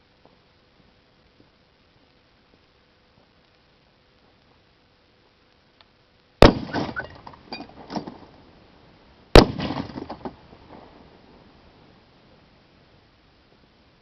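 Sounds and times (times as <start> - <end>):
gunshots: 6.4 - 7.2, 9.4 - 10.2.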